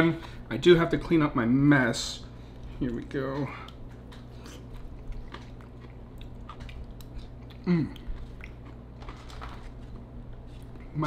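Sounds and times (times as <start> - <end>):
person chewing: 2.5 - 10.9.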